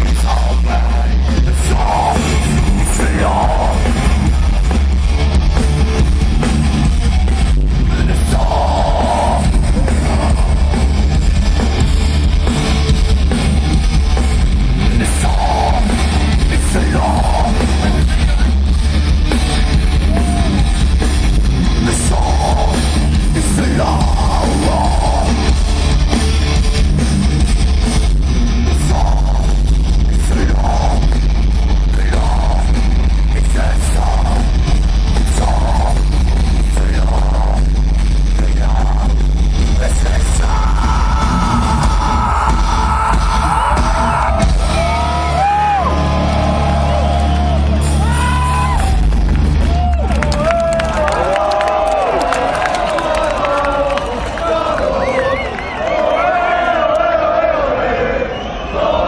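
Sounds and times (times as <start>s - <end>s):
person singing: 0.0s - 4.7s, 7.9s - 11.0s, 14.8s - 18.5s, 21.8s - 25.5s, 39.7s - 45.5s
distorted electric guitar: 0.0s - 52.9s
drum kit: 0.0s - 53.5s
heavy metal music: 0.0s - 55.1s.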